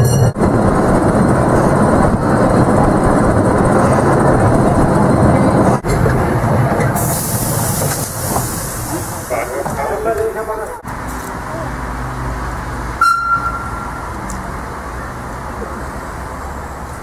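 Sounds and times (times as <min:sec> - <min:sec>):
train rolling: 0:00.0 - 0:17.0
steam hissing: 0:06.9 - 0:10.5.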